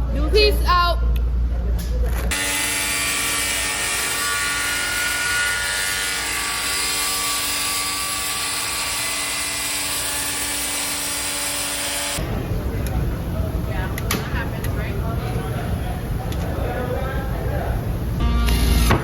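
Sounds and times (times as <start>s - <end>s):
power tool whining: 2.3s - 12.2s.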